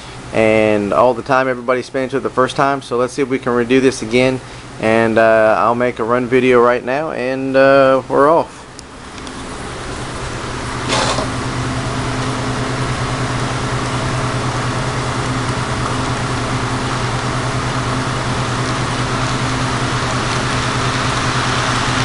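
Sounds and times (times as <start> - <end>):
model train electric hum: 9.2 - 22.0.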